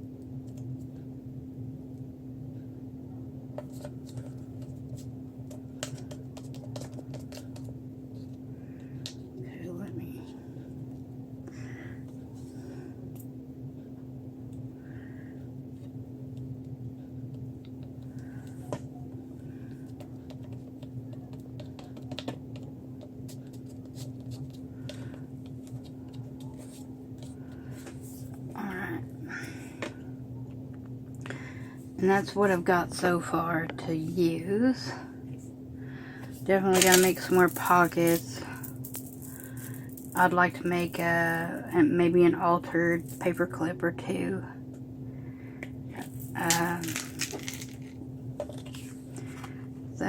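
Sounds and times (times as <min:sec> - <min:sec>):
steady low hum: 0:00.0 - 0:50.0
paper handling clicks and taps: 0:03.6 - 0:07.7, 0:20.0 - 0:28.0
hands handling paper and tools: 0:36.7 - 0:40.2, 0:46.0 - 0:49.5.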